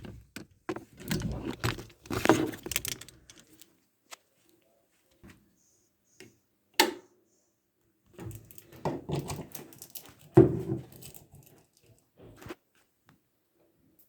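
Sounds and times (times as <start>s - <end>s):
small clicks and clatters: 0.0s - 3.7s.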